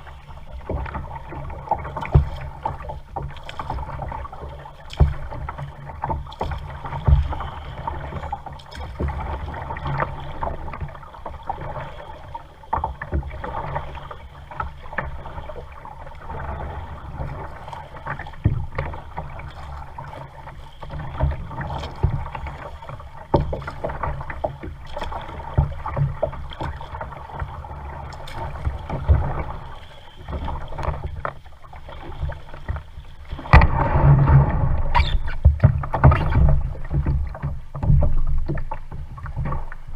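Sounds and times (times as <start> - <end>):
paddle splashing in water: 0.0 - 39.9
paddle knocking against hull: 0.4 - 39.9
low steady rumble: 32.8 - 39.9.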